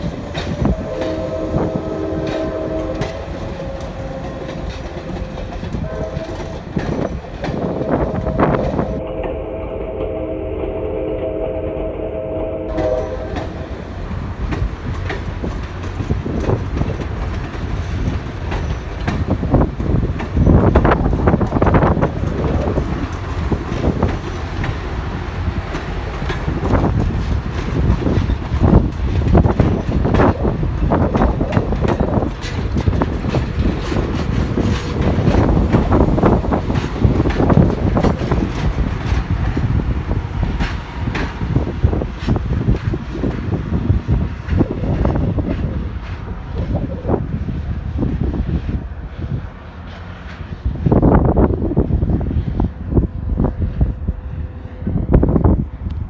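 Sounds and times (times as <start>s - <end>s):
train horn chord: 0.0s - 14.3s
train wheels rumbling and clicking: 0.0s - 56.0s.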